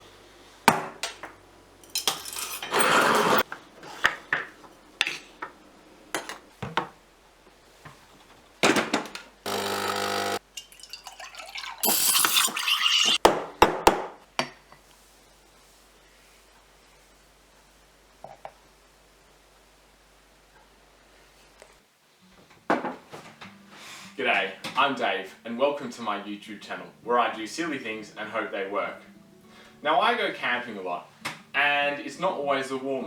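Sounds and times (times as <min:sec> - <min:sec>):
metal clinks and knocks: 0:01.8 - 0:03.4.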